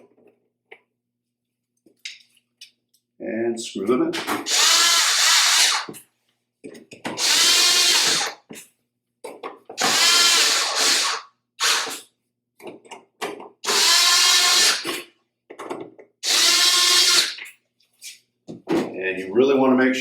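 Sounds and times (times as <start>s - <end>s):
power drill driving screws: 4.2s - 6.0s, 7.1s - 8.4s, 9.8s - 12.0s, 13.6s - 15.0s, 16.2s - 17.4s.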